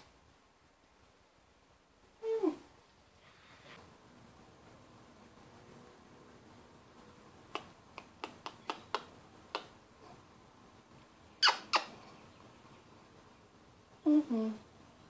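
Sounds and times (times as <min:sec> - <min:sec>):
budgerigar chirping: 0:11.4 - 0:11.9.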